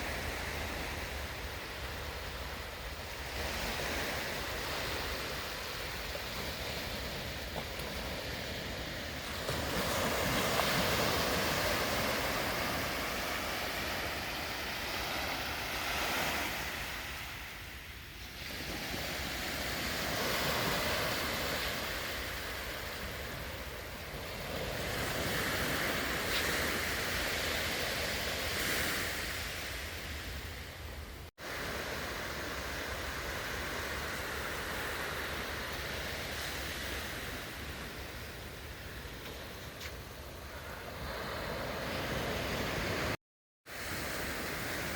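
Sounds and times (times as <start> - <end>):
surf breaking on beach: 3.1 - 17.6.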